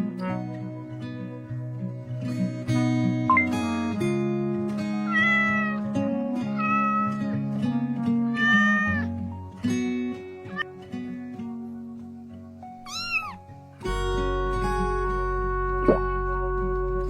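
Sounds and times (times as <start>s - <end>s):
guitar music: 0.0s - 17.0s
cat meowing: 5.1s - 5.9s, 6.6s - 7.2s, 8.3s - 9.2s, 12.8s - 13.4s.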